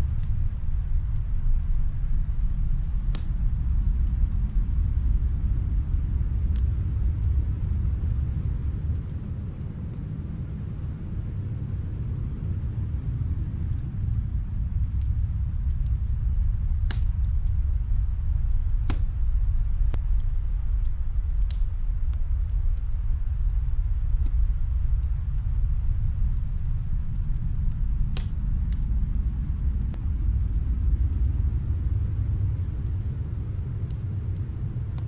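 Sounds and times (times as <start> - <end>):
steady low rumble: 0.0 - 35.0
wood fire popping: 0.1 - 35.0.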